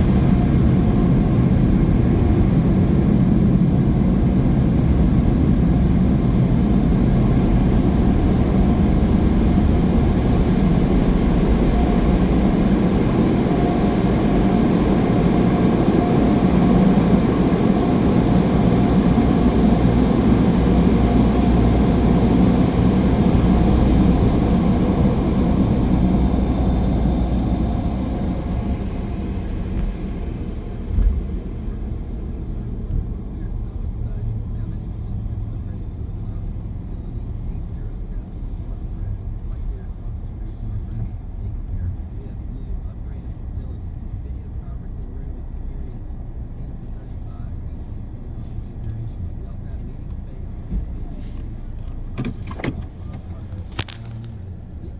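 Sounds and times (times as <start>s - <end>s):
car wash machinery rushing: 0.0s - 33.1s, 46.8s - 54.9s.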